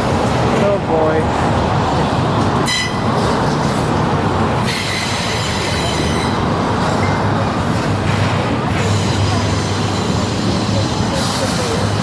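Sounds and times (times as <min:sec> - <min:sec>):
freight train cars rumbling: 0:00.0 - 0:12.0
high wheel squeal: 0:04.6 - 0:06.5, 0:08.7 - 0:12.0.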